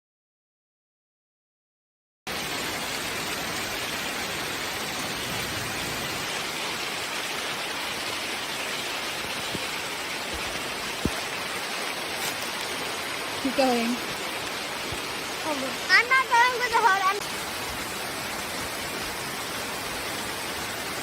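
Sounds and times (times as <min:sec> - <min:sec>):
steady rain falling: 0:02.3 - 0:21.0.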